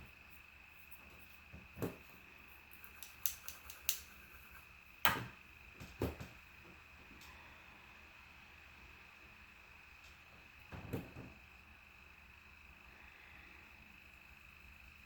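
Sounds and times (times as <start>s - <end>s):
faint high-pitched whine: 0.0s - 15.0s
light taps and clicks: 2.9s - 4.1s.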